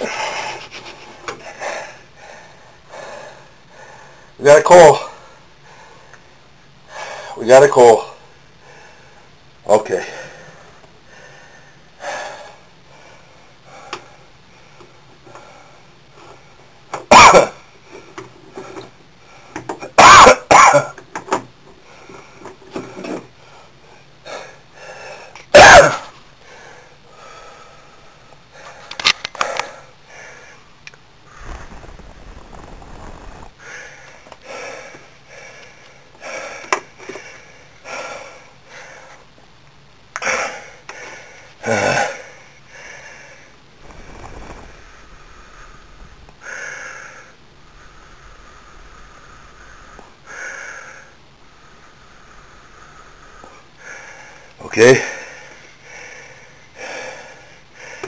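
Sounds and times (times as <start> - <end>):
person breathing noisily: 31.3 - 39.2, 42.2 - 58.0.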